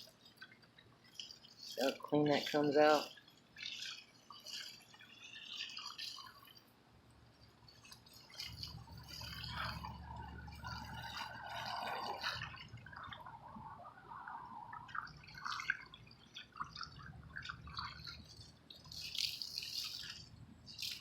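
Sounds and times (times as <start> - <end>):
water splashing off metal fins: 0.0 - 21.0.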